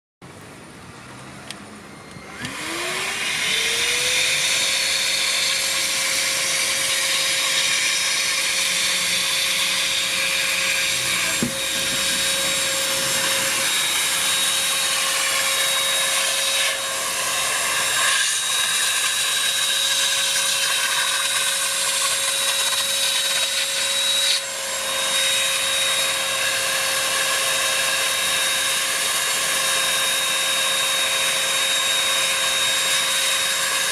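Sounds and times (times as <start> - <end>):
handheld vacuum cleaner running: 1.9 - 33.9.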